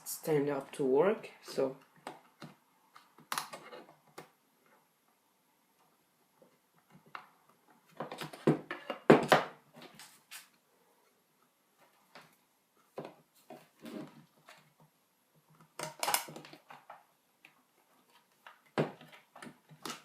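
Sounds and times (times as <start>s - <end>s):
plastic enclosure clicking and knocking: 15.5s - 17.5s.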